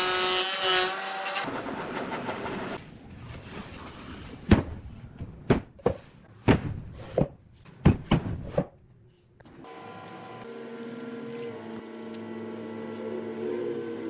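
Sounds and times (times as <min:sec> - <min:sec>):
steady motor hum: 0:09.5 - 0:14.0.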